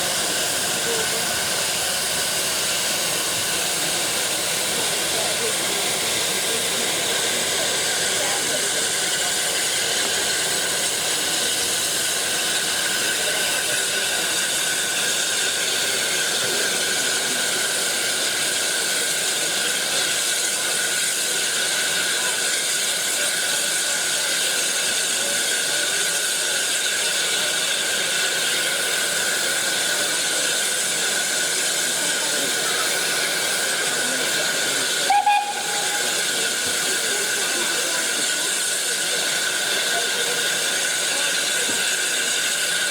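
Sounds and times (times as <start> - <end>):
steam hissing from locomotive: 0.0 - 42.9.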